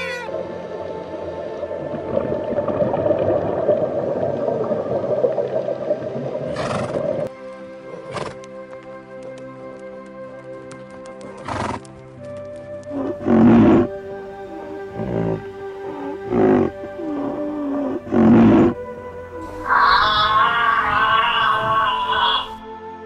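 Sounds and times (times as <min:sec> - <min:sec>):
horse whinnying: 0:00.0 - 0:00.4, 0:12.9 - 0:13.9, 0:15.0 - 0:18.8, 0:19.4 - 0:22.6
background music with held notes: 0:00.0 - 0:23.0.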